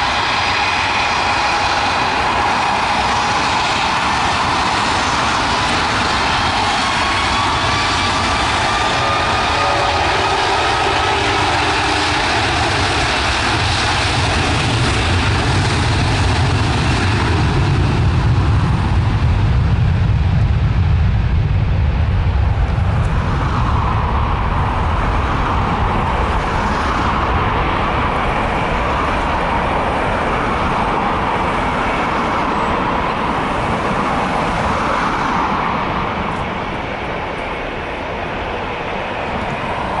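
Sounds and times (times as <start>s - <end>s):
jet engines roaring at takeoff: 0.0s - 40.0s.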